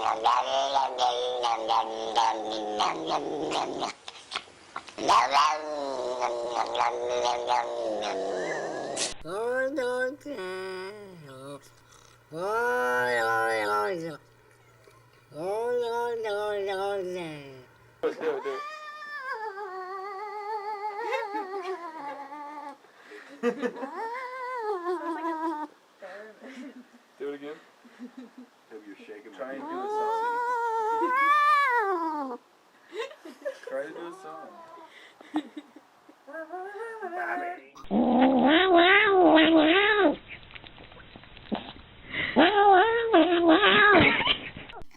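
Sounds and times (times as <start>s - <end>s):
cat yowling: 18.4s - 21.4s, 38.3s - 40.2s.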